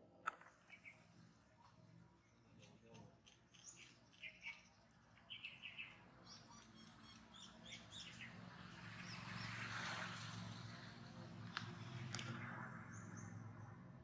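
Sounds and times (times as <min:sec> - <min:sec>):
faint bird chirps: 0:00.6 - 0:01.2, 0:02.2 - 0:08.3.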